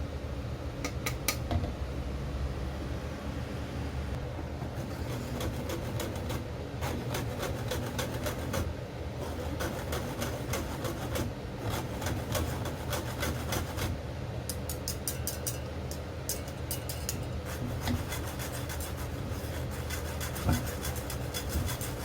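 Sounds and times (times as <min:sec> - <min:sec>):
steady low hum: 0:00.0 - 0:22.0
kitchen utensils scraping and clicking: 0:04.6 - 0:13.9, 0:14.5 - 0:22.0.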